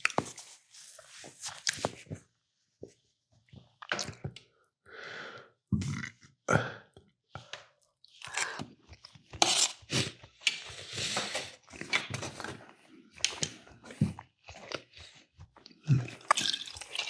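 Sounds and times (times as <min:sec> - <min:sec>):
chewing and crunching: 0:08.0 - 0:17.0.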